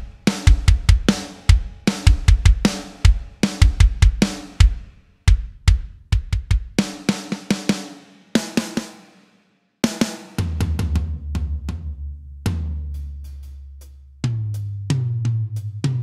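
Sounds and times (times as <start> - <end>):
drum kit playing fast patterns: 0.0 - 9.2, 9.8 - 11.6.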